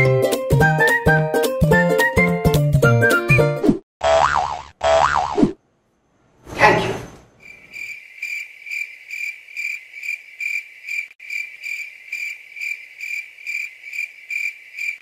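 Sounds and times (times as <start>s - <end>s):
cricket chirping: 7.4s - 15.0s.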